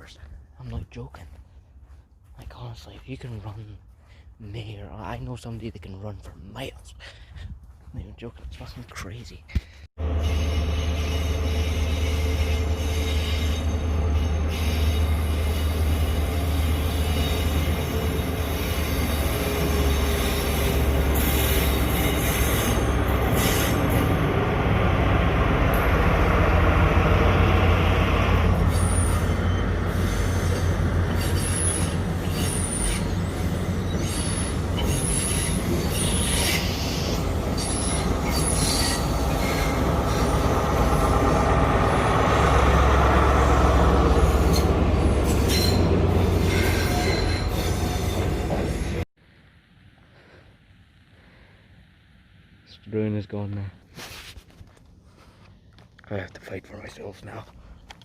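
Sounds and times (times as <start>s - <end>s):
wheels squealing: 10.0s - 24.3s, 28.1s - 49.0s
train rumbling on rails: 10.0s - 49.1s.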